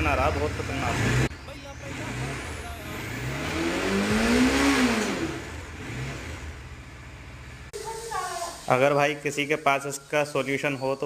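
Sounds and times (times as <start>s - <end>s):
motorcycle engine revving: 0.0s - 7.7s.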